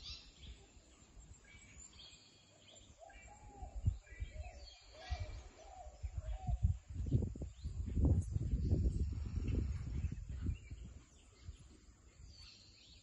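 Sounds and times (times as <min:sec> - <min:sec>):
faint bird chirps: 0:00.0 - 0:13.0
wind rumble on microphone: 0:03.2 - 0:13.0.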